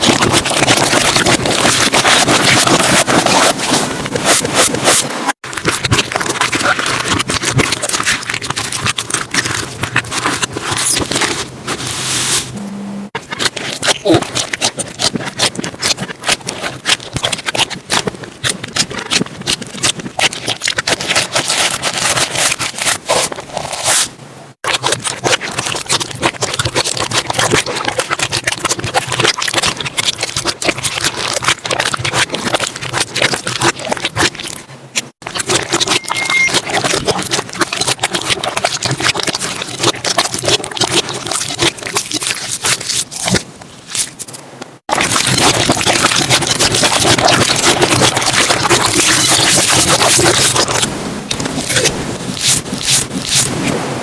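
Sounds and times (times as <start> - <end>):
slime squeezed by hand: 13.2 - 53.8.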